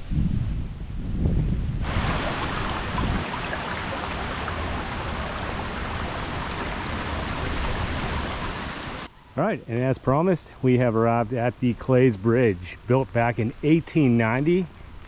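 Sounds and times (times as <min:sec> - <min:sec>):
low wind rumble: 0:00.0 - 0:09.2
creek water flowing: 0:01.9 - 0:09.1.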